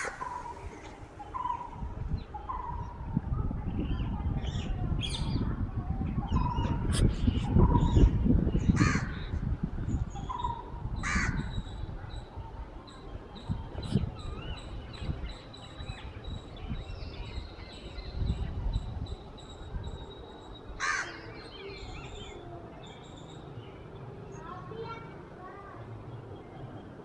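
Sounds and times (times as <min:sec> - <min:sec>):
loud bird calls: 0:00.0 - 0:03.0, 0:06.2 - 0:09.4, 0:10.1 - 0:12.3, 0:12.9 - 0:25.0
soft wavering bird chirps: 0:00.0 - 0:05.4.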